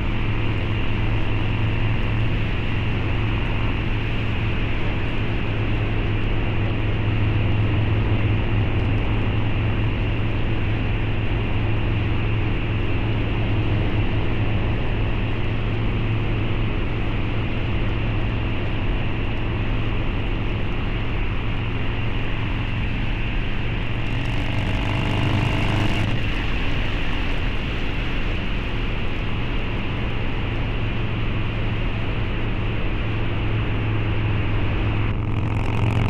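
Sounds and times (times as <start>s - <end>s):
motorcycle engine running: 20.3s - 28.5s, 30.9s - 36.0s.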